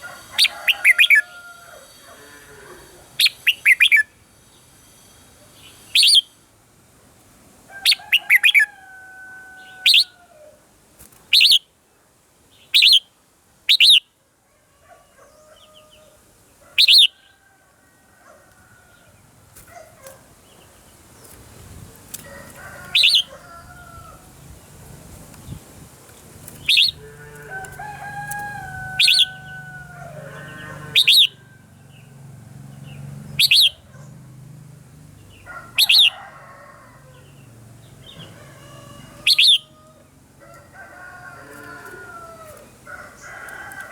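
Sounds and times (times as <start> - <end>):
bird calling sharp high notes: 28.6 - 29.6, 30.9 - 31.4, 33.4 - 33.8, 39.3 - 39.7
bird whistling descending phrases: 28.8 - 29.5, 31.0 - 31.4, 33.4 - 33.8, 39.3 - 39.7.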